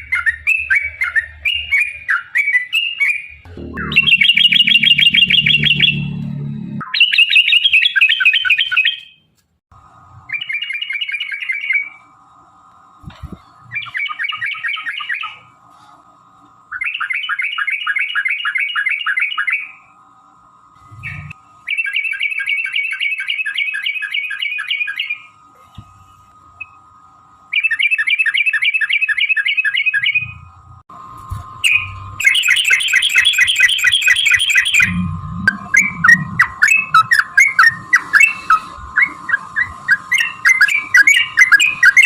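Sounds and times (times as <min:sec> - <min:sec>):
bird chattering song: 0:00.0 - 0:06.2, 0:13.7 - 0:15.5, 0:16.7 - 0:19.7, 0:27.5 - 0:30.4, 0:31.6 - 0:42.0
low rumble: 0:03.4 - 0:06.8, 0:34.7 - 0:39.0.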